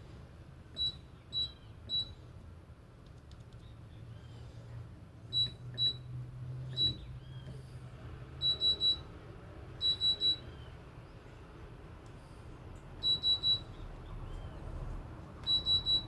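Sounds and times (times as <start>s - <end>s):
washing machine short high beeps: 0.8s - 2.2s, 5.3s - 6.1s, 6.7s - 7.1s, 8.4s - 9.1s, 9.8s - 10.7s, 13.0s - 13.8s, 15.4s - 16.0s.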